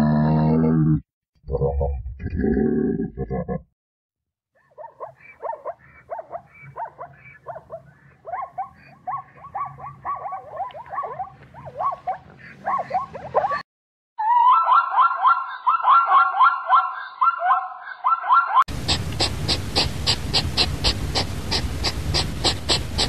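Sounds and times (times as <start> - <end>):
zebra barking yips: 4.6 - 13.6, 14.2 - 23.0.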